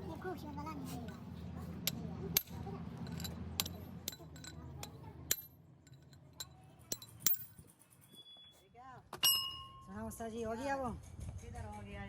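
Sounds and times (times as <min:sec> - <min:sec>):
metal objects clinking: 0:01.0 - 0:07.7.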